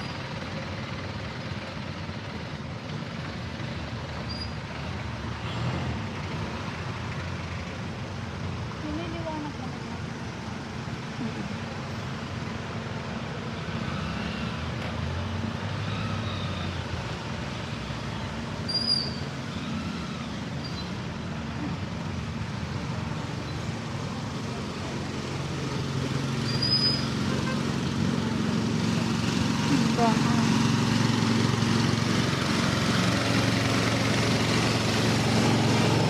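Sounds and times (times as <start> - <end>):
vehicle engines humming: 0.0 - 36.0
short high squeaks: 4.3 - 4.6, 18.6 - 21.0, 26.4 - 27.2.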